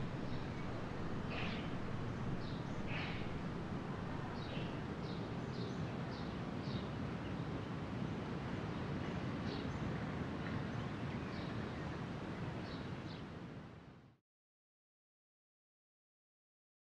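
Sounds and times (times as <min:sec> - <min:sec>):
steady low rumble: 0:00.0 - 0:05.6
small birds chirping: 0:00.0 - 0:06.9.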